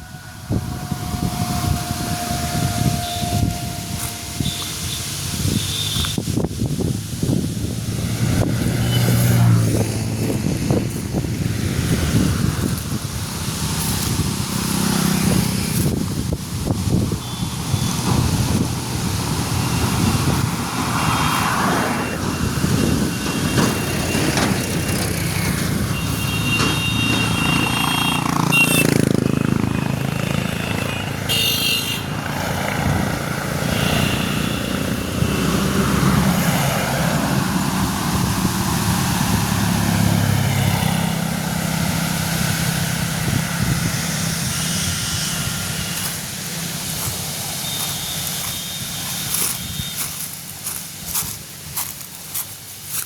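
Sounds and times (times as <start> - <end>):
brief high-pitched tones: 0.0 - 6.2
heavy engine running: 0.0 - 53.0.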